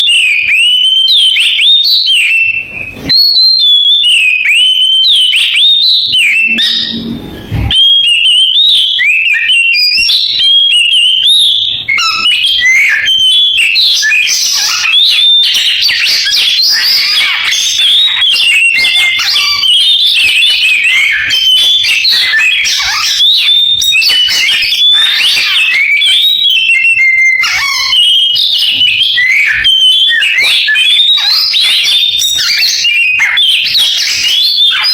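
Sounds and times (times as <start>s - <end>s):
magpie-robin singing: 0.0s - 34.9s.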